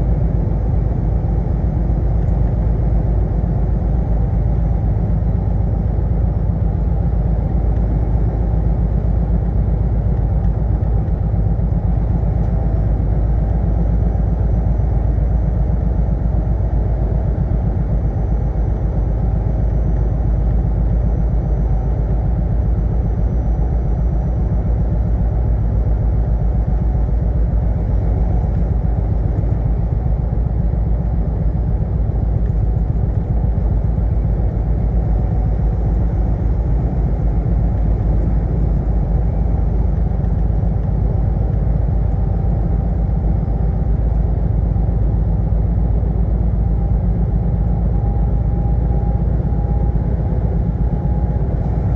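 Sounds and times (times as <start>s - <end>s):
truck engine and road rumble: 0.0s - 51.9s.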